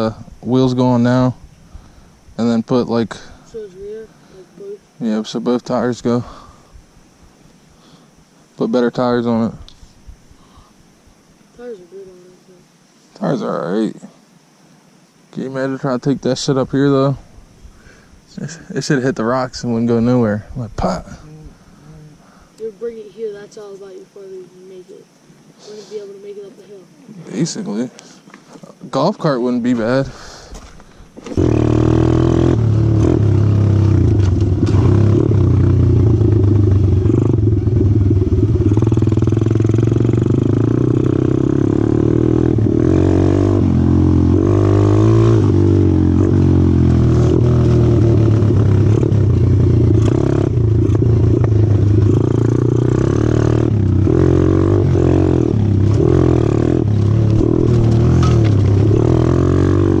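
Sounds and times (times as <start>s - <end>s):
small motorbike engine running: 31.3s - 60.0s.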